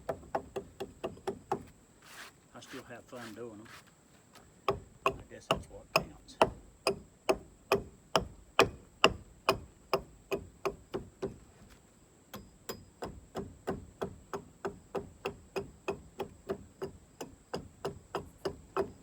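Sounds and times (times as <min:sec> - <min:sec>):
hatchet chopping into log: 0:04.7 - 0:11.4, 0:12.3 - 0:19.0.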